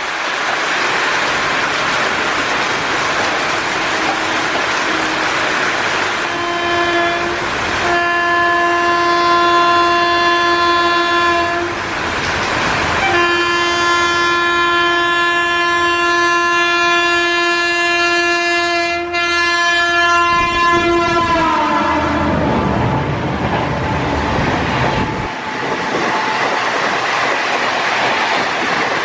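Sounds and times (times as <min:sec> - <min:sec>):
steady rain: 0:00.0 - 0:29.0
train noise: 0:00.0 - 0:29.0
train horn blasts: 0:03.8 - 0:12.0, 0:13.0 - 0:23.1.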